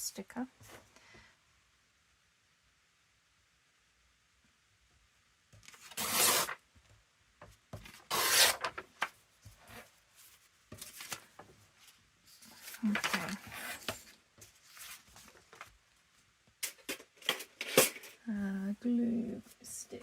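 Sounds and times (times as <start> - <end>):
paper rubbing and rustling: 5.7 - 6.6, 7.8 - 16.2.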